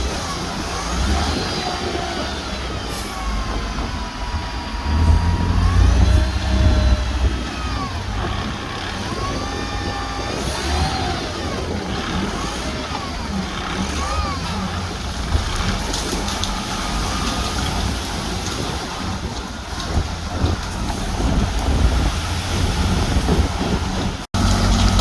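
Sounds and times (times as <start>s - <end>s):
high squealing of tracks: 0.0s - 16.0s
diesel engine rumble: 0.0s - 25.0s.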